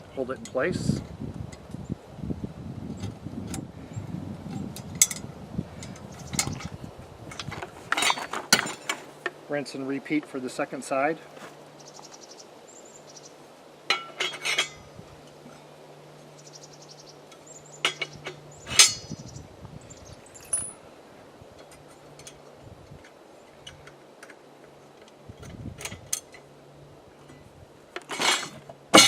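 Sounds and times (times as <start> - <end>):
metal parts clinking: 4.8 - 9.3, 13.9 - 14.9, 17.3 - 19.1, 20.3 - 20.8, 28.0 - 29.0.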